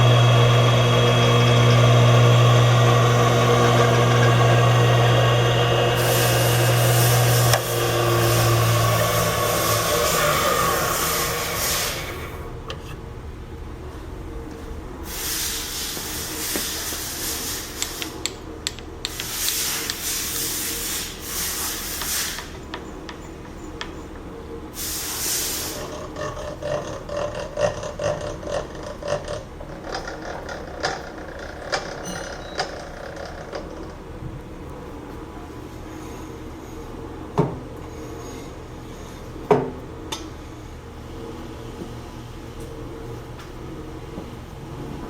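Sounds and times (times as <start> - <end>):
grinder motor running: 0.0 - 12.5
hissing grinding noise: 0.0 - 35.2.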